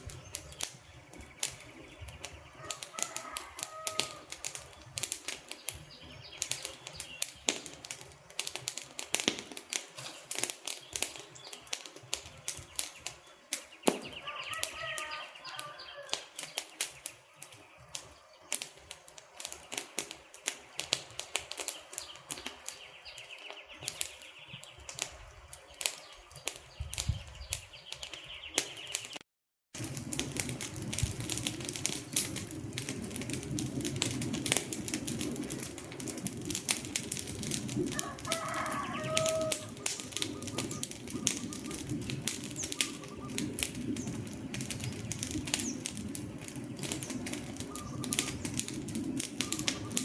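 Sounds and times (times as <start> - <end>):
wood fire crackling: 0.0 - 29.2, 29.8 - 50.0.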